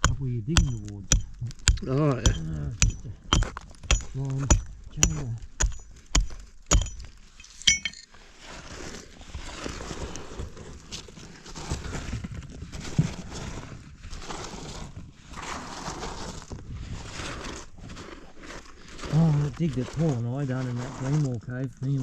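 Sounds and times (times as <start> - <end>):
sharp clink: 0.0 - 8.1
scraping rock and soil: 0.0 - 22.0.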